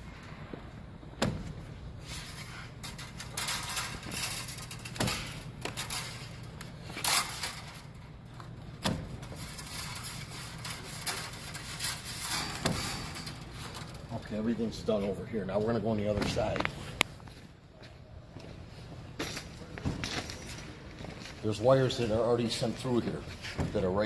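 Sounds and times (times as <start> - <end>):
metal scraping on metal: 9.2 - 14.5.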